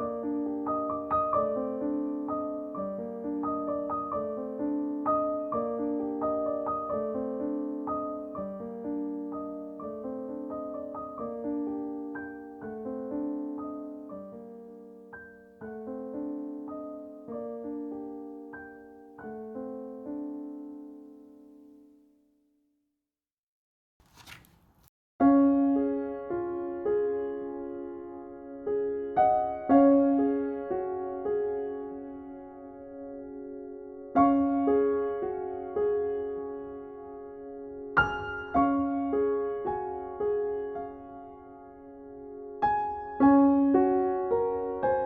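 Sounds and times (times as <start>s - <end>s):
gentle piano broken chords: 0.0s - 22.0s.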